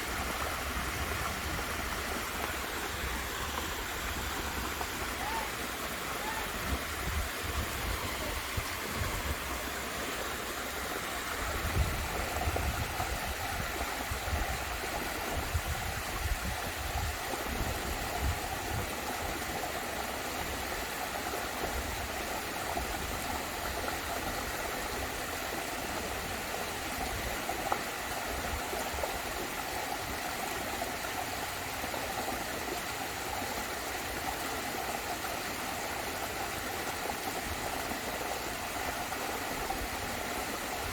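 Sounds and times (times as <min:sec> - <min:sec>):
waterfall rushing: 0:00.0 - 0:16.2.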